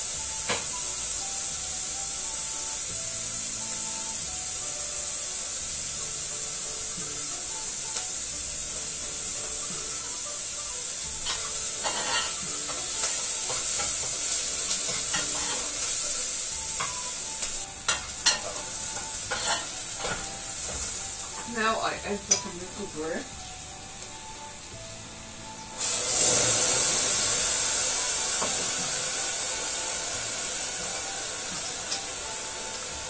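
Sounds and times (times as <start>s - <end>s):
onions sizzling in a pan: 0.0s - 33.0s
spoon scraping a pan: 11.2s - 16.1s, 16.8s - 21.5s.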